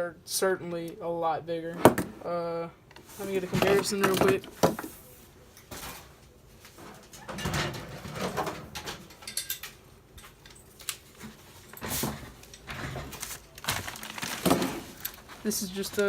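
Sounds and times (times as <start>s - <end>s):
packaging rustling: 10.8s - 16.0s.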